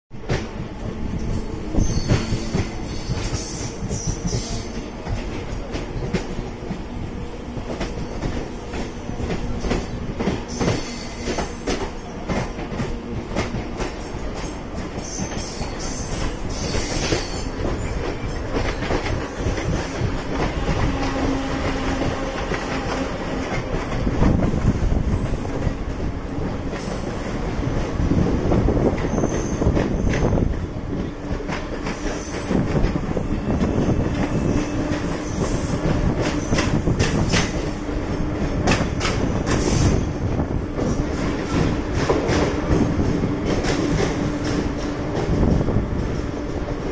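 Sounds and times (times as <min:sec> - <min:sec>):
train wheels rumbling on rails: 0:00.1 - 0:46.9
high wheel squeals: 0:01.7 - 0:04.7, 0:34.3 - 0:36.9.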